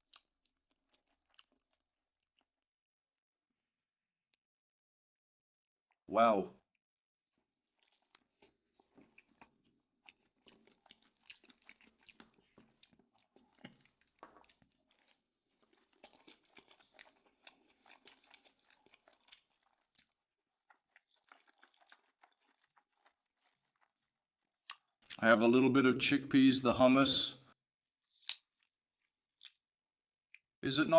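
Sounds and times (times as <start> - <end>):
person chewing wet mouth sounds: 0.0 - 1.8, 7.7 - 25.2, 28.1 - 29.7.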